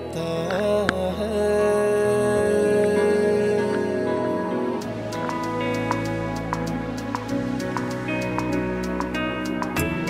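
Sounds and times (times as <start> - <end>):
person singing: 0.0 - 5.8
light plucked notes: 0.0 - 10.0
soft instrumental tones: 0.0 - 10.0.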